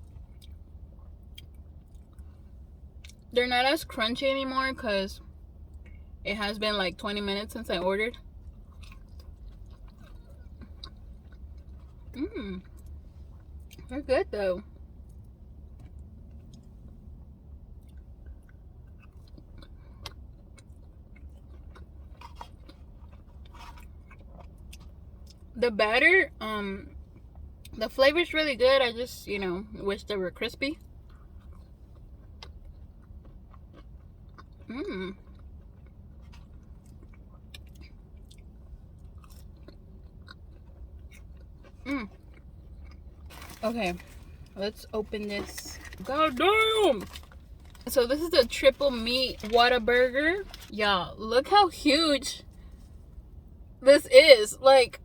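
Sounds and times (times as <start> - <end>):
person chewing: 8.4 - 13.9, 17.8 - 25.4, 31.0 - 44.6.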